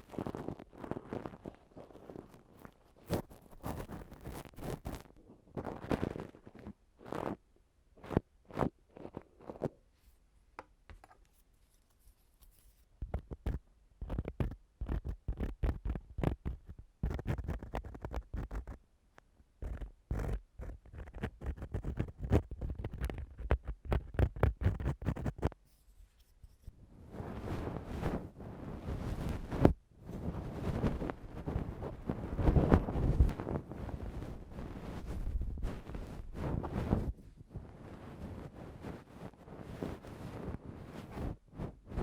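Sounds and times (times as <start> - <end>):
tools scraping a microphone: 0.1 - 7.4, 10.9 - 18.8, 19.6 - 26.8.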